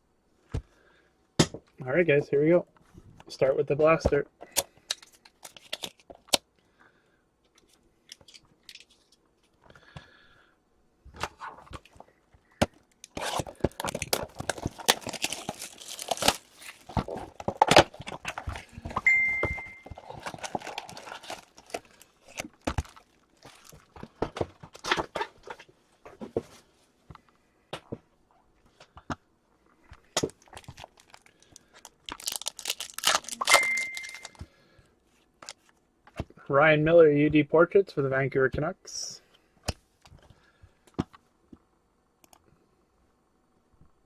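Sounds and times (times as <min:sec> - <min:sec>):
foil wrapper tearing and crinkling: 0:13.0 - 0:18.7, 0:20.0 - 0:24.0, 0:30.2 - 0:34.4
steady high tone: 0:19.1 - 0:20.0.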